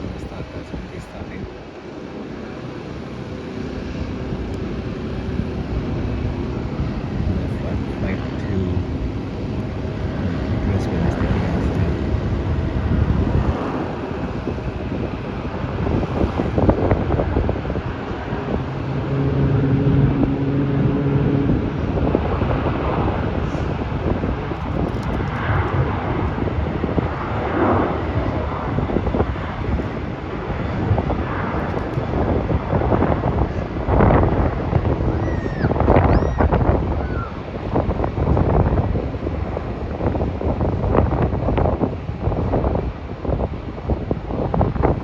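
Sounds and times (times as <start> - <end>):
jet airliner taking off: 0.0 - 45.0
wind buffeting microphone: 0.0 - 45.0.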